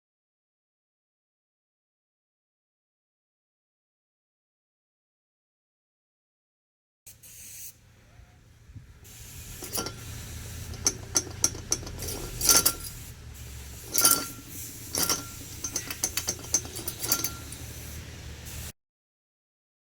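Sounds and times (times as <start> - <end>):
metallic clanking: 9.5 - 13.1, 13.7 - 17.8.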